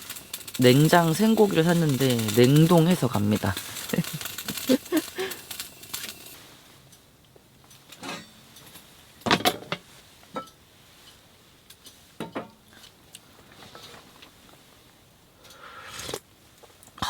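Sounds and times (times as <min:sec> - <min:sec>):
utensils clinking against cookware: 0:00.0 - 0:06.3.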